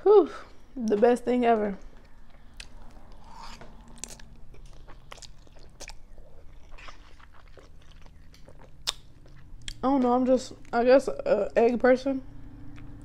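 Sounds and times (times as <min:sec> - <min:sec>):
wet chewing sounds: 0:01.8 - 0:10.8, 0:12.5 - 0:13.0.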